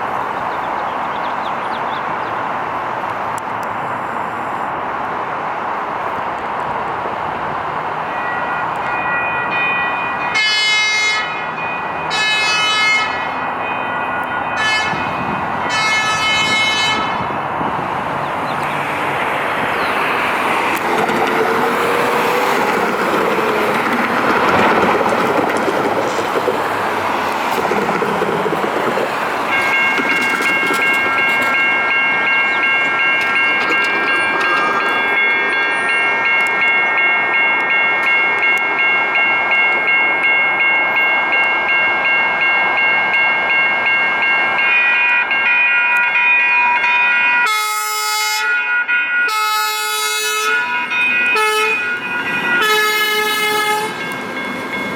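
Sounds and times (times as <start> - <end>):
train horn: 10.3 - 11.5, 12.1 - 13.4, 14.5 - 17.3, 47.4 - 54.1
train wheels rushing on rail: 11.2 - 48.5.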